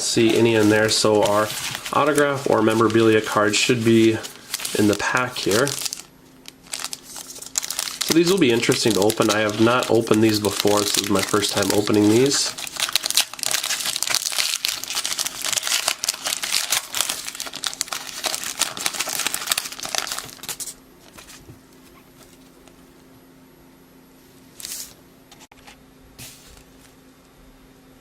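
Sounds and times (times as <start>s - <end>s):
wrapper tearing and crinkling: 0.2s - 21.2s.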